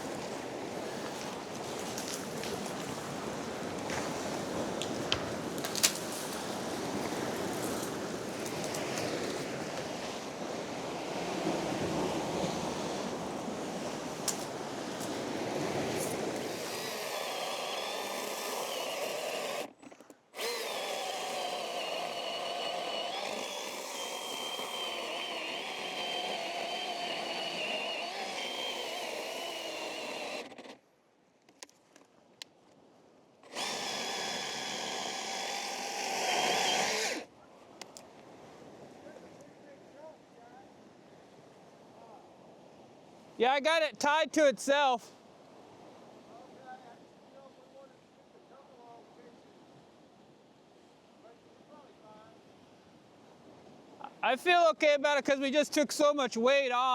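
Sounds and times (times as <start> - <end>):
power tool motor whining: 16.0 - 30.8, 33.4 - 37.3.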